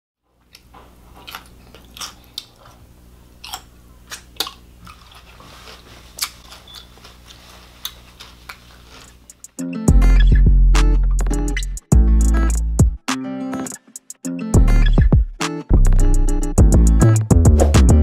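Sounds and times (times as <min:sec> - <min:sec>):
crunchy chewing of pickle chips: 0:00.4 - 0:09.5.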